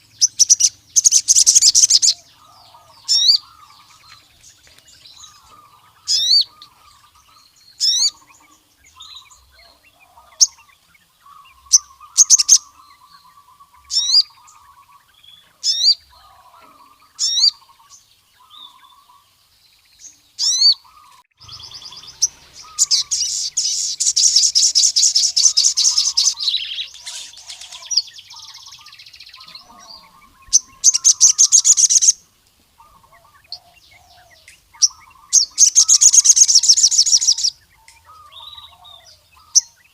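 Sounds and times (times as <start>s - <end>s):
fast bird trills: 0.0s - 15.0s, 20.4s - 39.9s
soft bird chattering: 0.0s - 19.2s, 20.0s - 32.2s, 32.8s - 39.9s
sunbird high downward notes: 21.4s - 33.5s.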